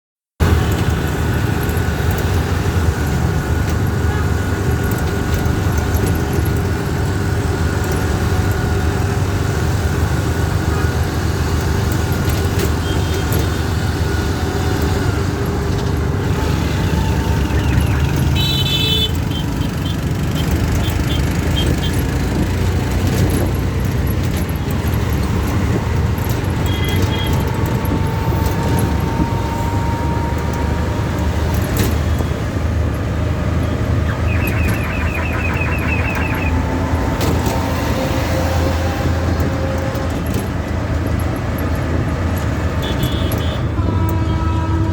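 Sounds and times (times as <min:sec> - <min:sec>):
city traffic rumble: 0:00.4 - 0:44.9
car horn toot: 0:16.8 - 0:22.0, 0:34.1 - 0:37.4, 0:42.8 - 0:44.9
quick beeps: 0:34.1 - 0:36.6.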